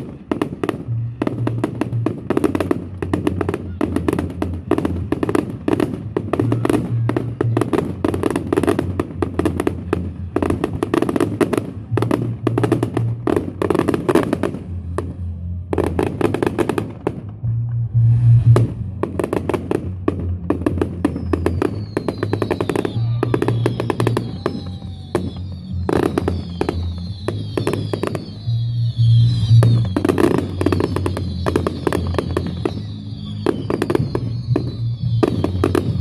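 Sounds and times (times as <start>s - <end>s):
fireworks cracking and banging: 0.0s - 36.0s
music with bass line: 0.0s - 36.0s.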